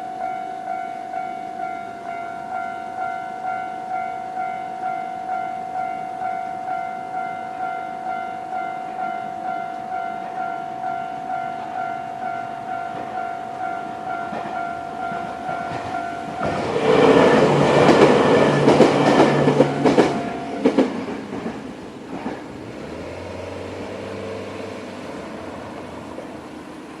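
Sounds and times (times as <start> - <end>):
level crossing warning bell: 0.0 - 22.1
train wheels clattering over rail joints: 12.9 - 24.2.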